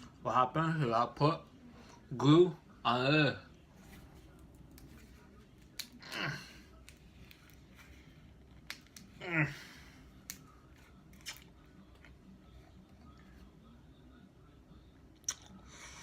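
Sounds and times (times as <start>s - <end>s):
person groaning: 9.2s - 9.8s.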